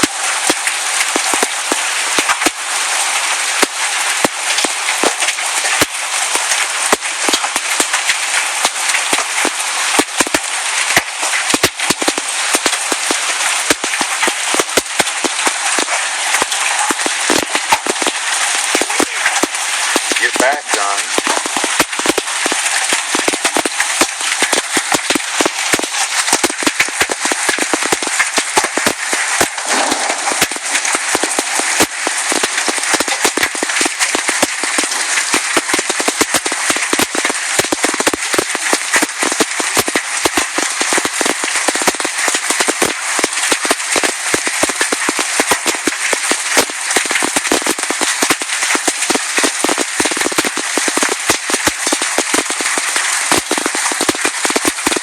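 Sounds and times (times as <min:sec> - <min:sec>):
hailstones pelting hard surfaces: 0:00.0 - 0:55.0.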